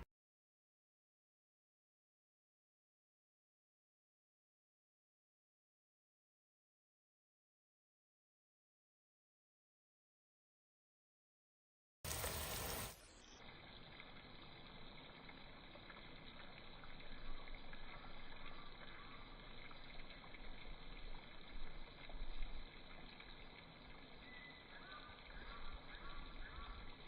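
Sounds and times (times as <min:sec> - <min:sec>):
water running and trickling: 0:12.1 - 0:27.0.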